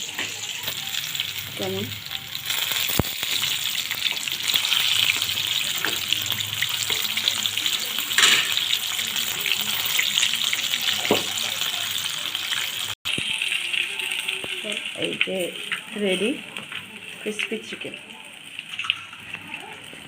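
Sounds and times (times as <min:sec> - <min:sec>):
chicken frying in hot oil: 0:00.0 - 0:20.0.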